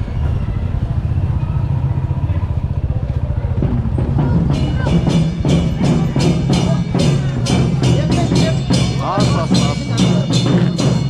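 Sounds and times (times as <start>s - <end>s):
motorcycle engine running: 0.0s - 11.0s
music with percussive hits: 3.6s - 11.0s.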